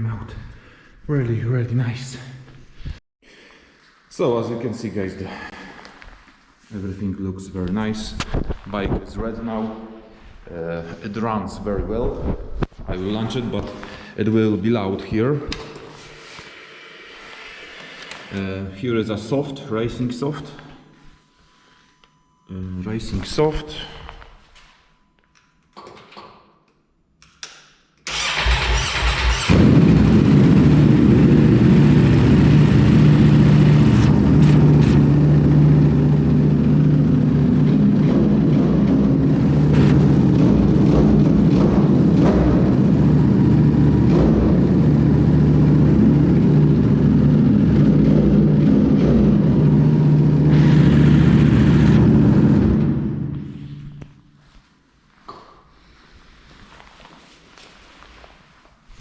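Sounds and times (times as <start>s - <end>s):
motorcycle engine starting and idling: 28.1s - 53.8s.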